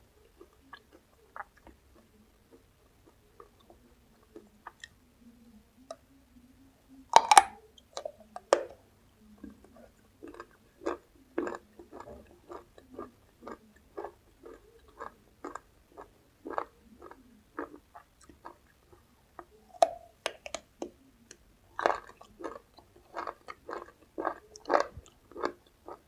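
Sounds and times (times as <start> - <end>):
chewing: 0.2 - 5.0, 9.4 - 26.0
crunchy bite of raw vegetable: 7.1 - 8.8, 21.8 - 26.0.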